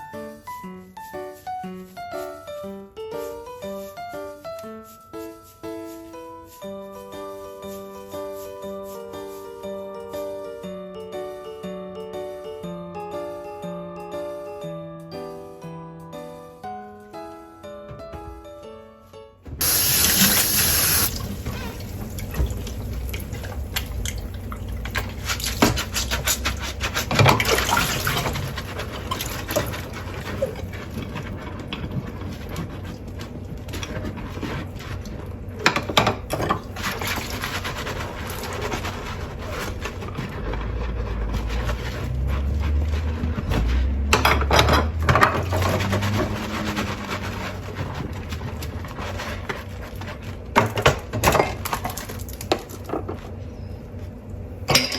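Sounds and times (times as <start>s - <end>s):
tap water running into sink: 19.6s - 26.0s
crockery clinking: 54.7s - 54.9s.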